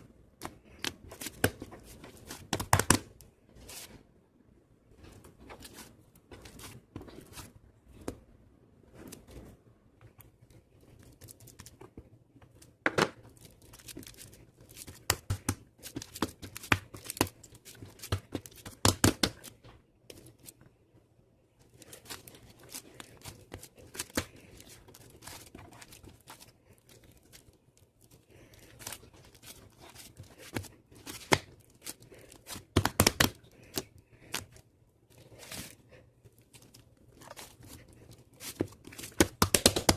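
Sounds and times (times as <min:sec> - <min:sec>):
crinkling and tearing: 0:10.2 - 0:20.6, 0:21.6 - 0:39.9.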